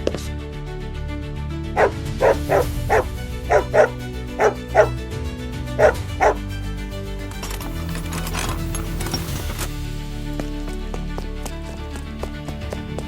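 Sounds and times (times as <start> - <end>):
background music: 0.0 - 13.0
dog barking: 1.8 - 5.0, 5.8 - 6.5.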